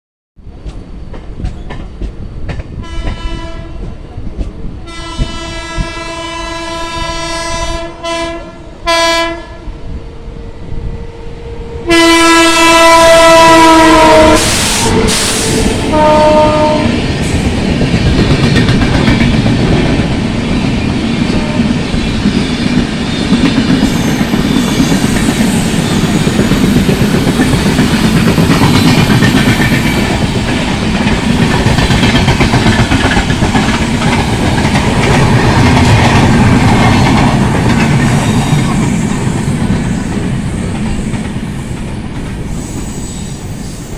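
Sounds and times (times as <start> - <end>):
train rushing past: 0.4 - 43.9
locomotive horn blasts: 2.8 - 3.9, 4.9 - 9.7, 11.8 - 17.0
wheels clacking over rail joints: 17.0 - 42.4.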